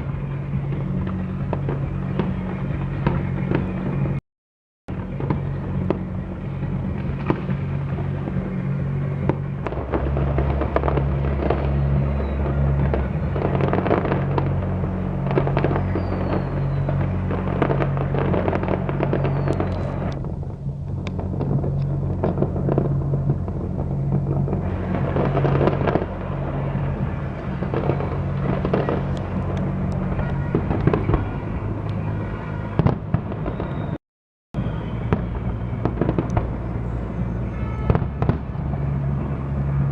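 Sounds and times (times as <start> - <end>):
fireworks bangs and crackling: 0.0 - 4.2, 4.9 - 34.0, 34.6 - 39.9
music with pulsing bass: 4.9 - 32.3
falling firework whistles: 9.2 - 14.6, 15.2 - 20.3, 32.7 - 34.0, 34.6 - 39.9.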